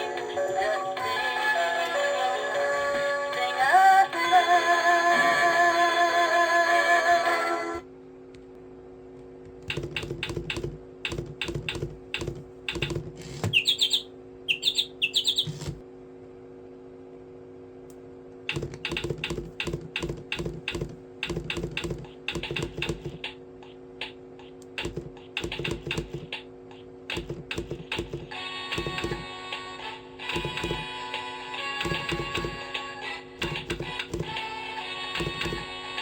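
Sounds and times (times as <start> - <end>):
steady low hum: 3.3 - 36.0
rapid clicking: 9.7 - 13.1, 18.5 - 23.4, 24.0 - 26.5, 27.1 - 29.3
short high chirps: 13.6 - 15.4.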